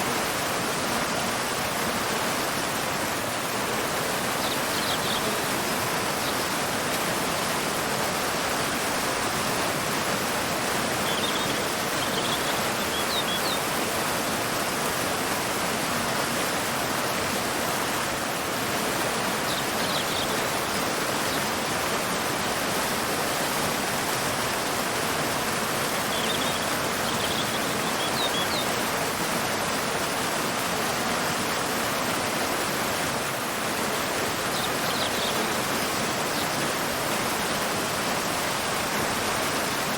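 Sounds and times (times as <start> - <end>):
waterfall pouring into river: 0.0 - 39.9
faint high bird chirps: 11.0 - 13.6, 26.1 - 28.7, 34.5 - 35.6.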